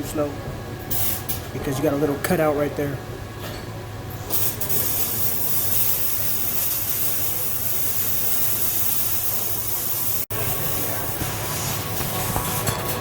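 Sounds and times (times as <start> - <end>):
welding arc sizzling hiss: 0.9 - 1.4, 4.2 - 13.0.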